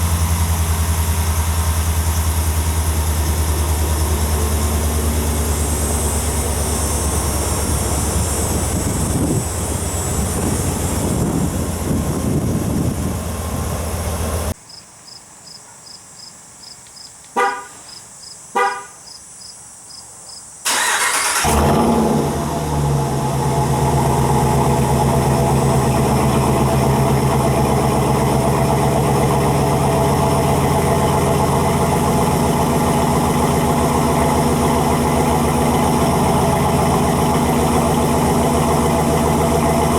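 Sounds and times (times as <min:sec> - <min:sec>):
pickup engine idling: 0:00.0 - 0:14.6, 0:20.7 - 0:39.9
short horn chirps: 0:17.4 - 0:18.0, 0:18.6 - 0:19.0
engine cranking and starting: 0:20.7 - 0:39.9.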